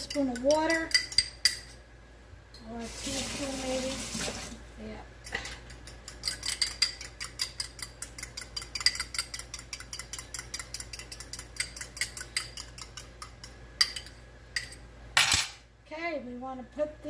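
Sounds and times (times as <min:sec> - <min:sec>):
utensil clicking against bowl: 0:00.0 - 0:01.8, 0:05.2 - 0:14.8.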